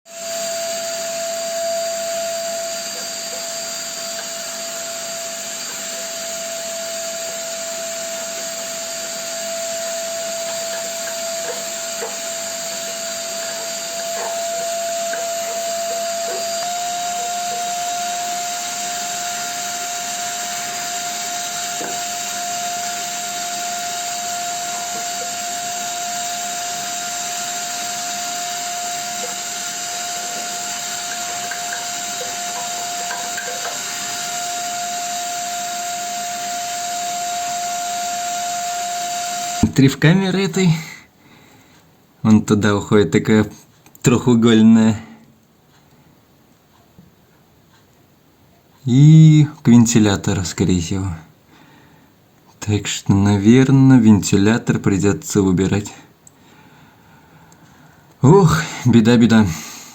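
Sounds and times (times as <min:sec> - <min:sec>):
vacuum cleaner whining: 0:00.0 - 0:41.5, 0:56.4 - 0:59.9.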